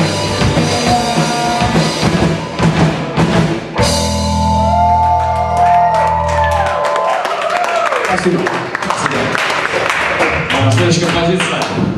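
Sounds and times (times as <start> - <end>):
live rock band playing: 0.0 - 7.1.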